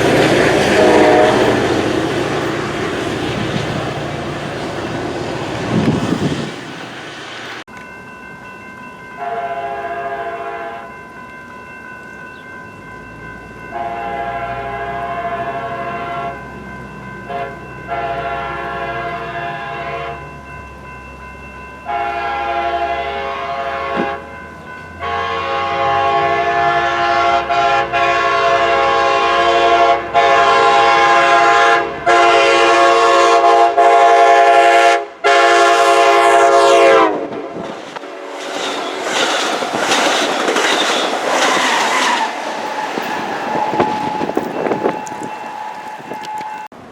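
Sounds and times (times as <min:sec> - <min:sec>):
train air horn blasts: 0:00.0 - 0:02.4, 0:09.2 - 0:10.9, 0:13.7 - 0:16.5, 0:17.3 - 0:20.3, 0:21.8 - 0:24.4, 0:25.0 - 0:38.5, 0:41.6 - 0:46.7.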